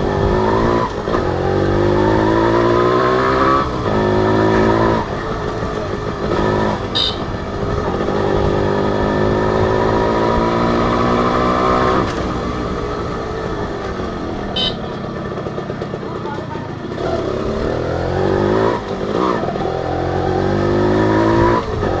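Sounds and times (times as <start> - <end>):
motorcycle engine revving: 0.0 - 22.0
high beep: 7.0 - 7.2.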